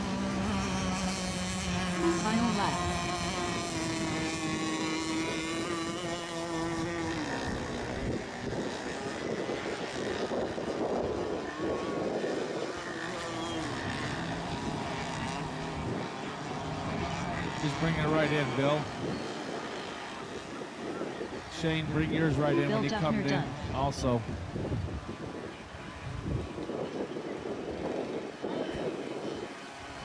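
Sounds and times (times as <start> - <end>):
model boat engine whining: 0.0 - 21.6.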